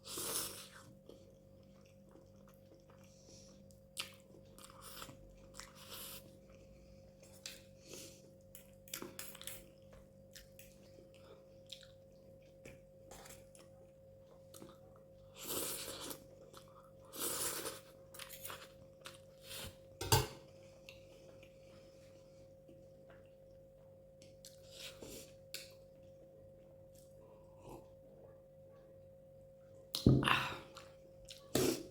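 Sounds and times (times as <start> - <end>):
person chewing: 0.0 - 19.9, 30.7 - 31.9
cutlery clicking on a plate: 20.0 - 20.4.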